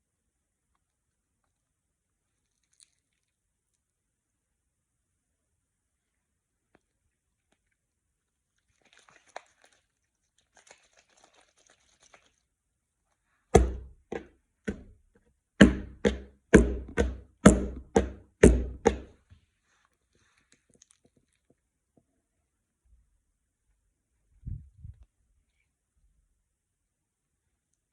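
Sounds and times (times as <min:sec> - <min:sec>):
dull heavy thuds: 0:13.6 - 0:15.0, 0:15.6 - 0:19.1.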